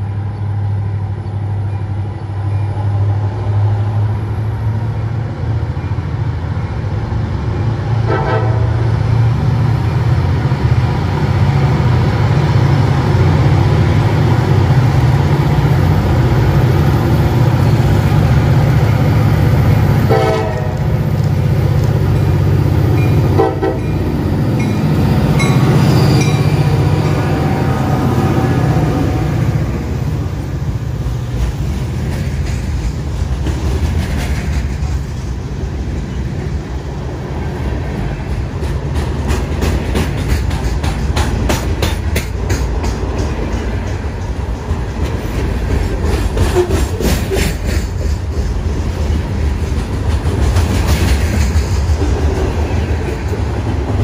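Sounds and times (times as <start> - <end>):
diesel locomotive engine rumble: 0.0 - 54.0
locomotive horn blasts: 8.0 - 8.9, 20.1 - 20.9, 23.3 - 24.0.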